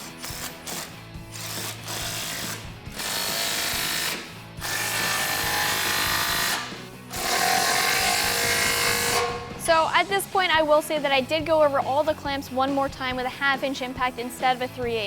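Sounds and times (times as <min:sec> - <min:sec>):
impact wrench running: 0:00.0 - 0:09.6.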